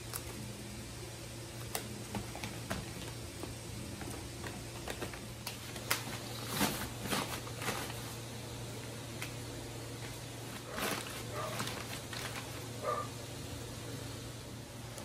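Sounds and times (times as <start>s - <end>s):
low steady hum: 0.0s - 15.0s
paper bags rustling and crinkling: 2.2s - 8.3s, 10.0s - 13.0s.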